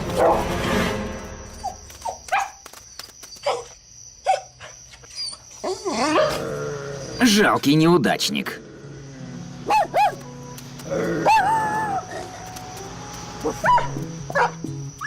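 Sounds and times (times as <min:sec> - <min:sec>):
dog barking: 0:02.1 - 0:02.6, 0:03.4 - 0:04.8, 0:09.6 - 0:10.2, 0:13.6 - 0:14.6
dog whining: 0:11.0 - 0:12.4.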